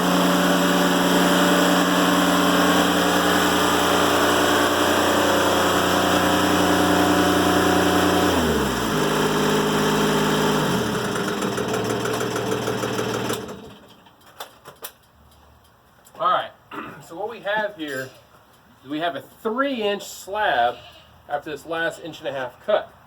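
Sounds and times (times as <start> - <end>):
sawmill engine running: 0.0 - 13.9.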